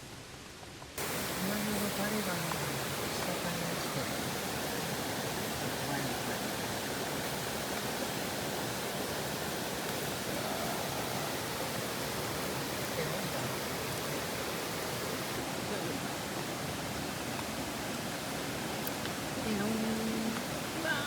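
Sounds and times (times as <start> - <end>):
stream water flowing: 0.0 - 21.0.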